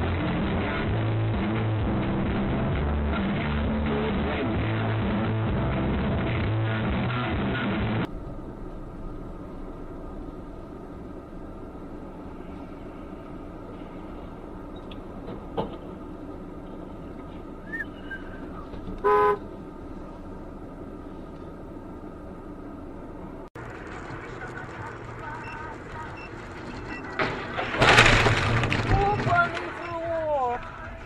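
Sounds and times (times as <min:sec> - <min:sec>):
road traffic noise: 0:00.0 - 0:28.8
car horn honk: 0:19.0 - 0:19.5.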